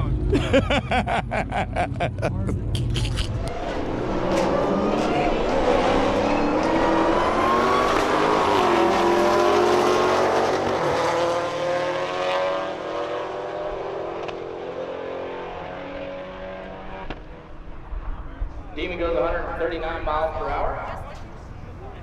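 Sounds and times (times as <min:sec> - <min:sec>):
racing car engine accelerating: 0:01.0 - 0:18.1.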